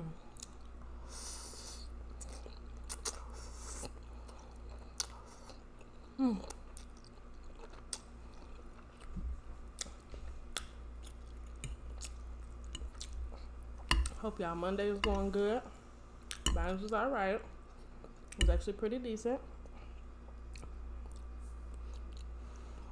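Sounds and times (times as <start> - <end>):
wet chewing and smacking: 2.1 - 14.2, 19.6 - 22.4.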